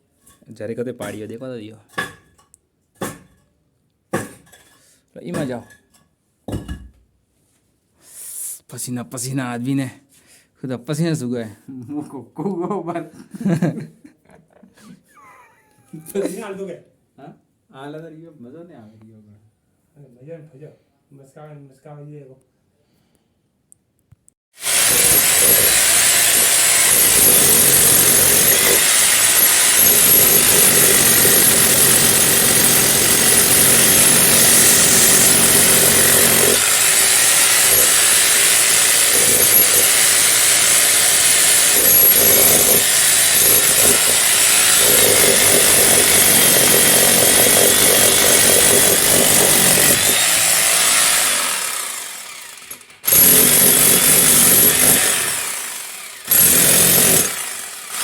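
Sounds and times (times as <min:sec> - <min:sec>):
hammer drill whining: 0:24.6 - 0:58.0.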